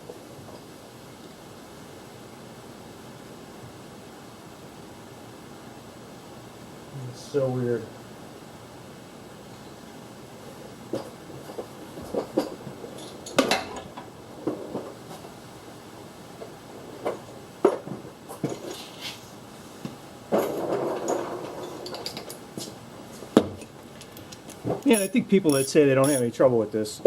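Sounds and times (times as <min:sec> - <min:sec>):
rustling and scraping: 0:10.4 - 0:13.3, 0:14.3 - 0:15.4, 0:16.4 - 0:23.4
hand tools clinking on metal: 0:24.2 - 0:26.4.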